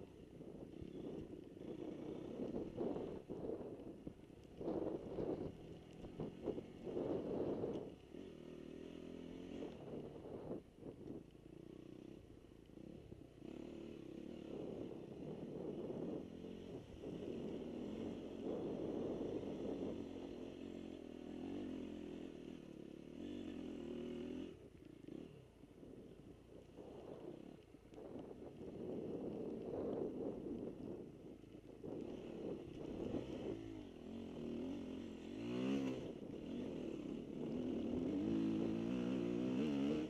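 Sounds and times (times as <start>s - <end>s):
dirt bike engine revving: 32.0s - 40.0s.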